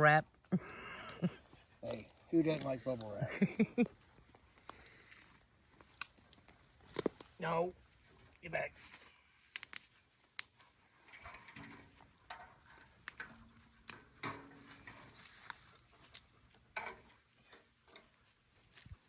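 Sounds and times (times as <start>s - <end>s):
light clicks and taps: 4.2s - 7.4s, 9.4s - 19.0s.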